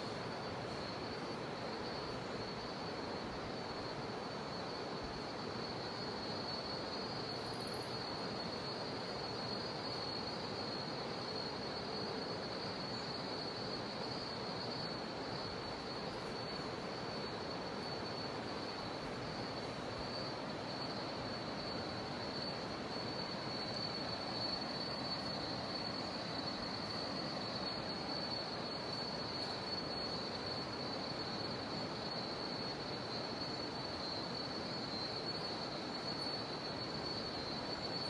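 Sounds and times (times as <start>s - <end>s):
cicadas droning: 0.0s - 38.0s
river water rushing: 7.9s - 32.0s.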